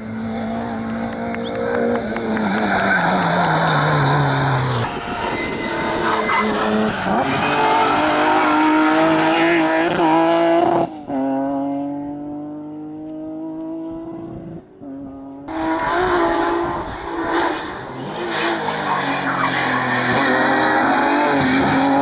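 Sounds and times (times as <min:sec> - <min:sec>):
another car engine: 0:00.0 - 0:09.0
rally car engine revving: 0:00.0 - 0:22.0
tyres squealing: 0:15.5 - 0:22.0.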